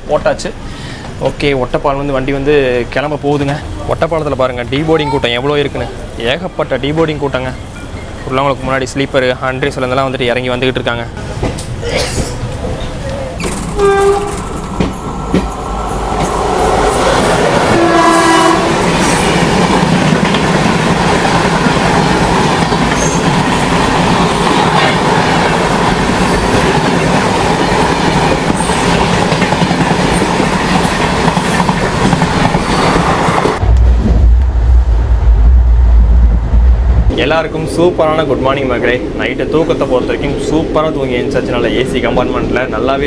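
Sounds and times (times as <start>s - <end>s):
moving train rumble and clatter: 0.0s - 43.0s
train horn blasts: 13.8s - 14.5s, 17.6s - 19.1s.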